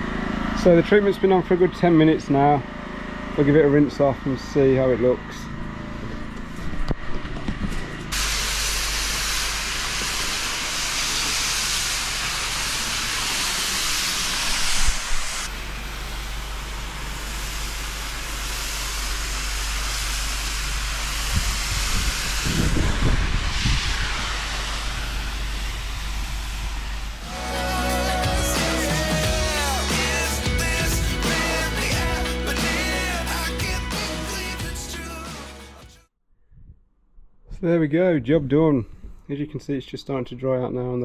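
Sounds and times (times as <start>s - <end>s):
pressure washer spraying water: 8.1s - 35.8s.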